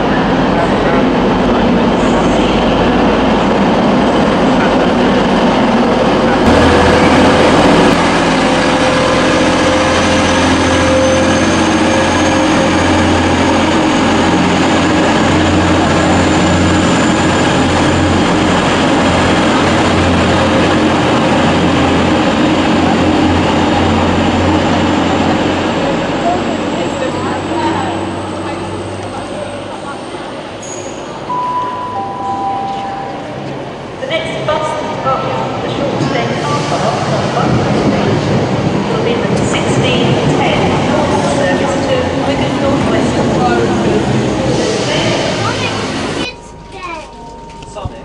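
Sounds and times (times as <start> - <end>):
train engine drone: 0.0 - 48.0.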